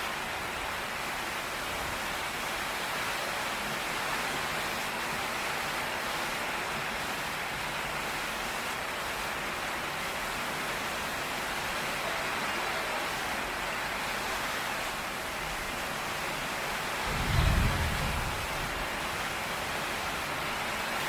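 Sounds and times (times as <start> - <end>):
heavy rain pouring: 0.0 - 21.0
thunder rumbling: 17.0 - 18.9.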